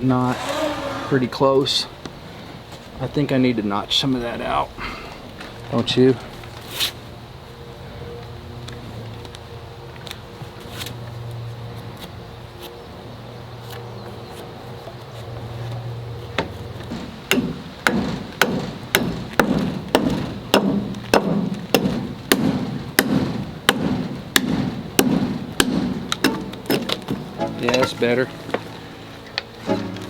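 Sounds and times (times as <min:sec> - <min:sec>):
hatchet chopping wood: 0:17.3 - 0:27.9.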